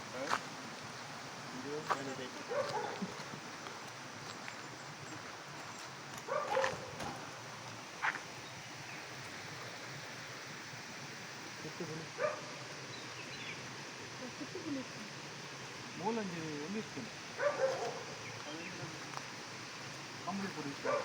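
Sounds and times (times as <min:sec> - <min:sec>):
steady background hiss: 0:00.0 - 0:21.0
dog barking: 0:02.4 - 0:03.2, 0:06.3 - 0:07.2, 0:12.2 - 0:12.6, 0:17.4 - 0:18.2.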